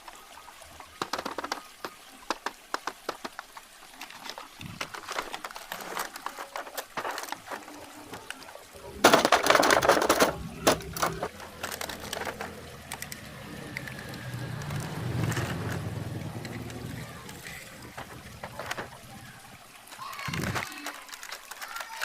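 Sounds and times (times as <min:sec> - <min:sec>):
packaging crinkling: 0:02.3 - 0:22.0
low hum: 0:07.7 - 0:19.6.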